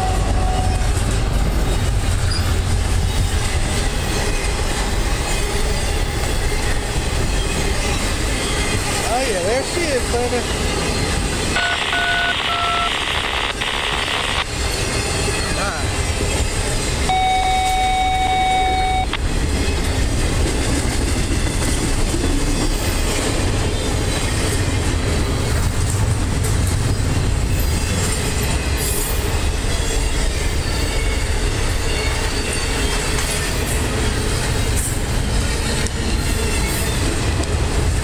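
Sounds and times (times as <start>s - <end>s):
freight train wheels rumbling: 0.0s - 11.7s, 13.2s - 38.0s
steady high tone: 11.6s - 14.5s, 17.1s - 19.2s.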